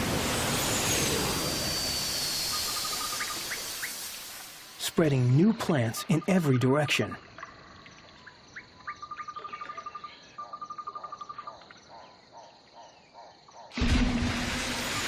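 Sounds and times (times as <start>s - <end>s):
loud rushing noise: 0.0s - 2.9s
insect chirping trills: 0.0s - 13.8s
faint outdoor ambience: 0.0s - 15.0s.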